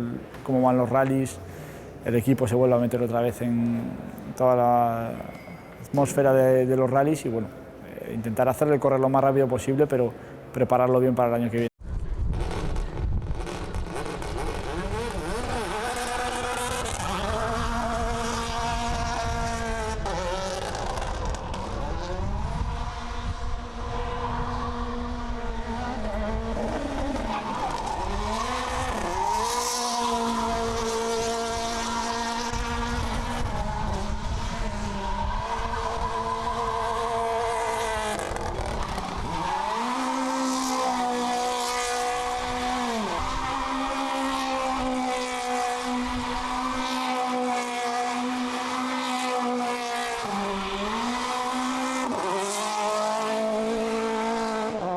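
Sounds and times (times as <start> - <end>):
rally car engine revving: 12.2 - 54.9.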